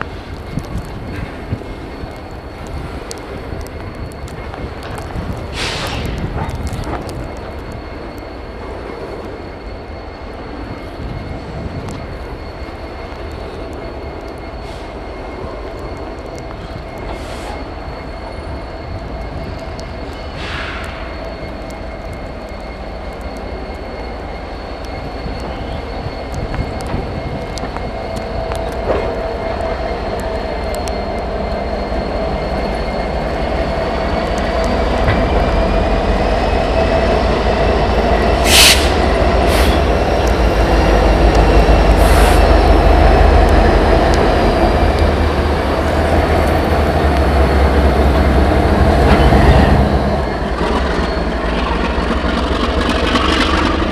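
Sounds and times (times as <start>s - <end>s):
diesel locomotive rumble and whine: 0.0s - 53.9s
air brake hisses: 5.5s - 6.2s, 20.3s - 21.2s, 38.4s - 39.9s.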